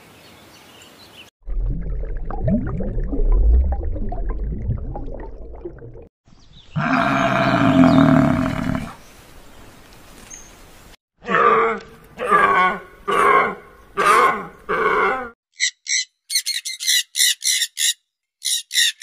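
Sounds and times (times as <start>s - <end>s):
low rumbling: 1.4s - 6.1s
water buffalo bellowing: 11.2s - 15.4s.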